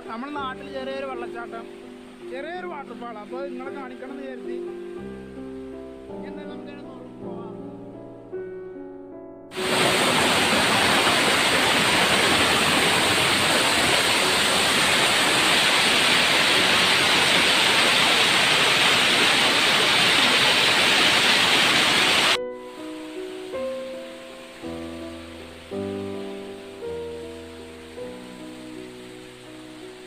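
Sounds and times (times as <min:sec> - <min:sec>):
background music: 0:00.0 - 0:19.8, 0:22.4 - 0:30.0
waterfall rushing: 0:09.5 - 0:30.0.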